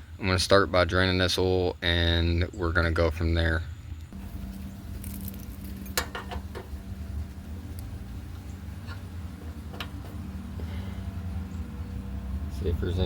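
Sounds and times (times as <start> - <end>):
low hum: 3.7 - 13.0.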